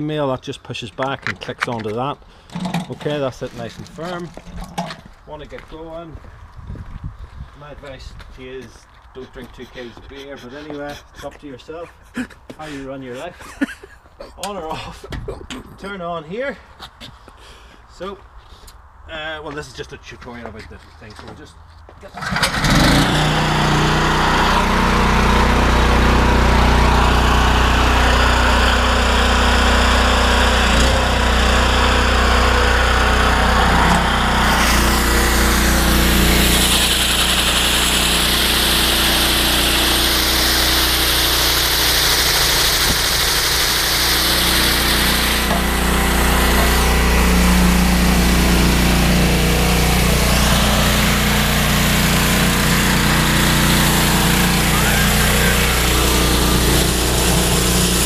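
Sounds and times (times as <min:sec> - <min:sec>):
pressure washer engine running: 0:22.2 - 0:58.0.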